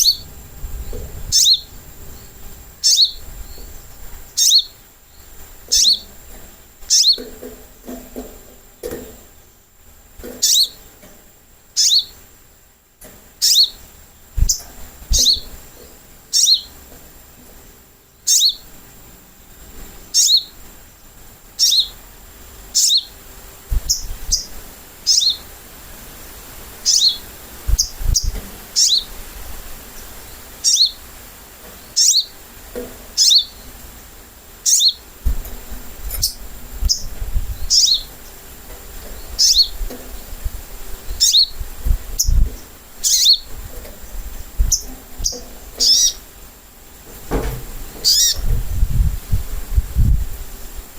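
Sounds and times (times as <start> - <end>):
bird calling sharp chips: 14.4 - 15.5, 39.1 - 39.8, 43.0 - 43.5, 44.6 - 46.2, 48.0 - 48.5.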